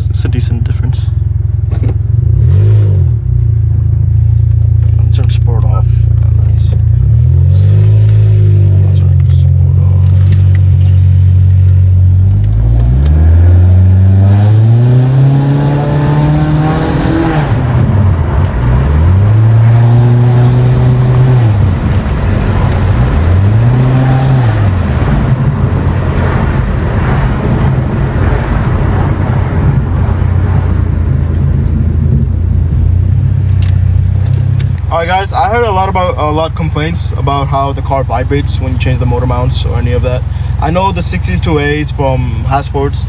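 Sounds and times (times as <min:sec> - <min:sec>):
car engine revving: 0:00.0 - 0:43.0.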